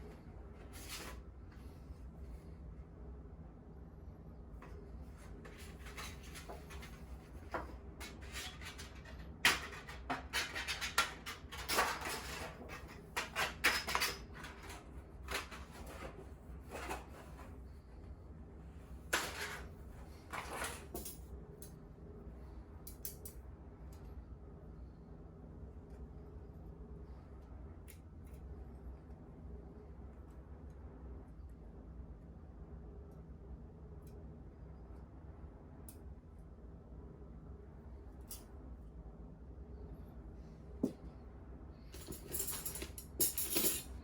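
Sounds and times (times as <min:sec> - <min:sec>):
steady low hum: 0:00.0 - 0:44.0
objects scraping and rustling: 0:00.6 - 0:01.3, 0:04.6 - 0:17.7, 0:19.1 - 0:21.0.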